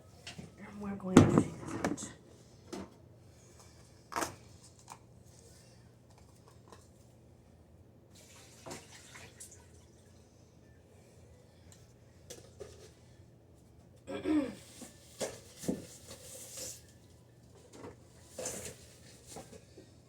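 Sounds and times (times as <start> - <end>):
faint low hum: 9.4 - 20.0.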